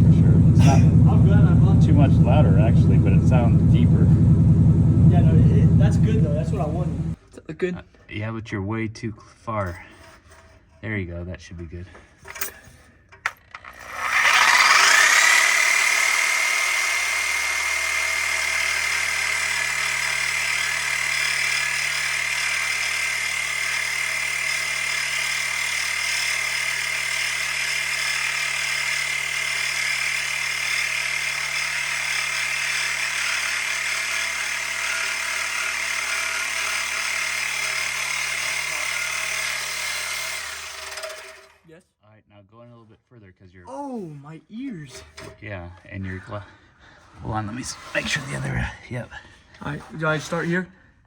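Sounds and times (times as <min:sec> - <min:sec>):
low steady hum: 0:00.0 - 0:07.2
power tool high whine: 0:00.0 - 0:07.2, 0:13.5 - 0:41.6.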